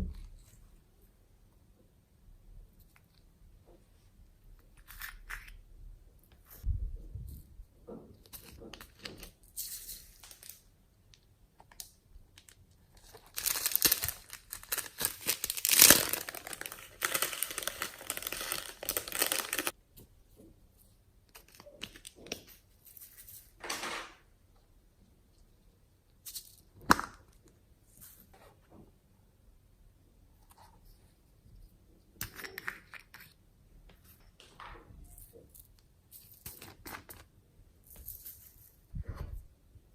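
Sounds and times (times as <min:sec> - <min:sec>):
slime squishing and crackling: 0:12.4 - 0:19.8.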